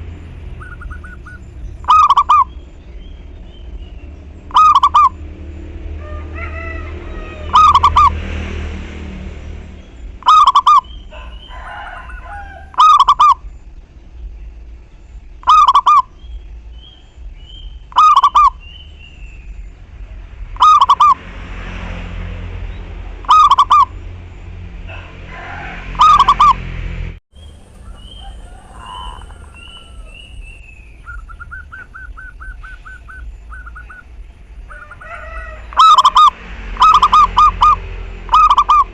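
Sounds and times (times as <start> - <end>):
small birds chirping: 0.0 - 5.8, 9.7 - 21.2, 27.3 - 38.9
bird trill: 0.0 - 8.2, 9.8 - 21.2, 22.7 - 24.6, 26.0 - 26.6, 27.4 - 38.9
dove cooing: 0.6 - 2.5, 4.5 - 5.2, 10.2 - 13.5, 15.4 - 16.1, 17.9 - 18.6, 26.0 - 26.6, 27.4 - 38.9.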